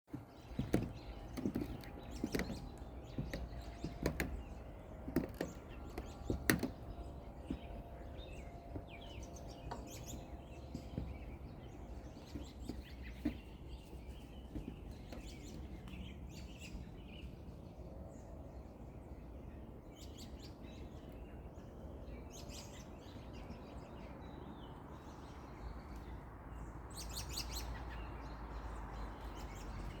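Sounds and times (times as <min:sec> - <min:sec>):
small birds chirping: 0:00.1 - 0:30.0
low outdoor rumble: 0:00.4 - 0:20.0
sharp knocks: 0:00.5 - 0:07.9.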